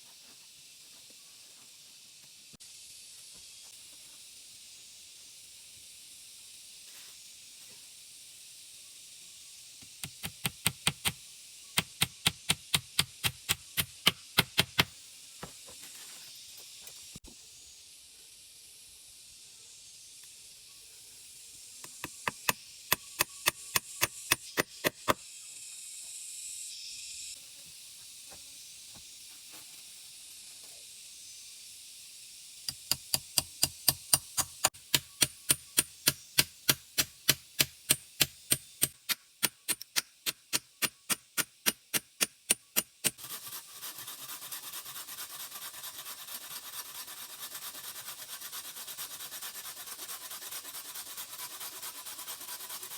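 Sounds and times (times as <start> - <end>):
steady high hiss: 0.0 - 52.9
tool knocking in chopping work: 9.9 - 11.2, 11.8 - 15.6, 21.8 - 25.2, 32.7 - 43.2
steady rasping rub: 43.2 - 52.9.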